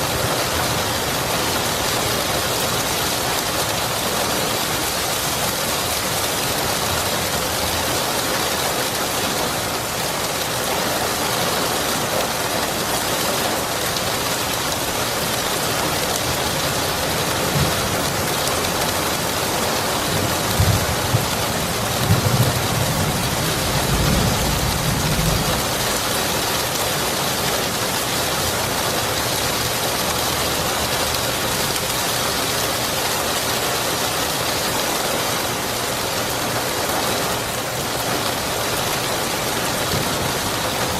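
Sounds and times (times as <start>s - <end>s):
steady rain: 0.0s - 40.9s
thunder rumbling: 20.2s - 26.2s.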